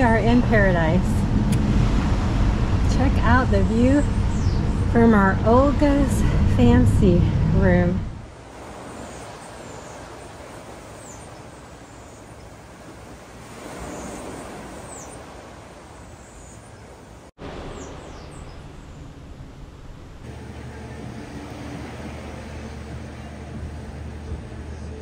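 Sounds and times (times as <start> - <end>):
outdoor background noise: 0.0 - 25.0
high falling bird chirps: 16.0 - 19.4.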